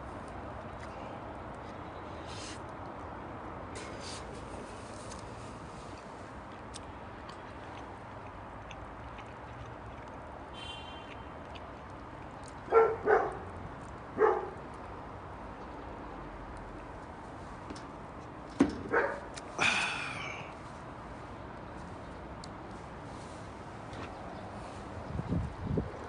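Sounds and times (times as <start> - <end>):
dog barking: 12.7 - 13.4, 14.2 - 14.6, 18.9 - 19.3.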